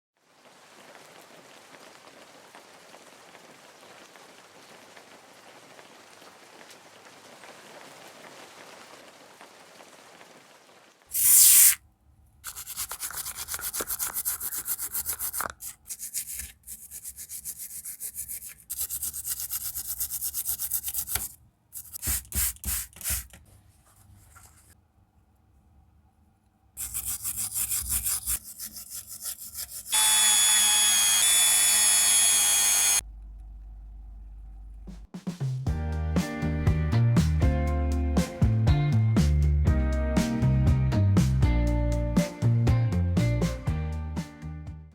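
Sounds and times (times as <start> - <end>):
filing metal ring: 26.8 - 33.0
rotary tool motor whine: 29.9 - 33.0.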